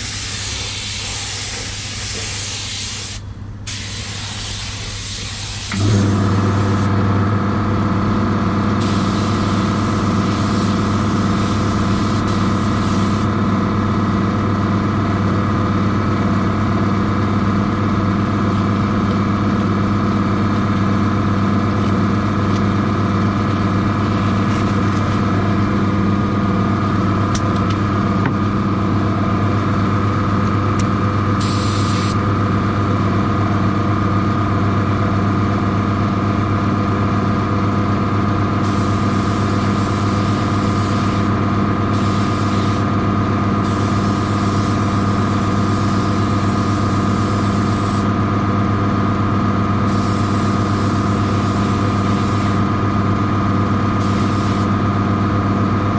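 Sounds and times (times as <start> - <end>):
air spraying hiss: 0.0 - 6.9, 8.8 - 13.3, 31.4 - 32.2, 38.6 - 41.3, 41.9 - 42.9, 43.6 - 48.1, 49.9 - 52.6, 54.0 - 54.7
machine motor humming: 0.0 - 7.2, 8.8 - 13.3, 38.6 - 43.0, 49.8 - 52.7, 54.0 - 54.8.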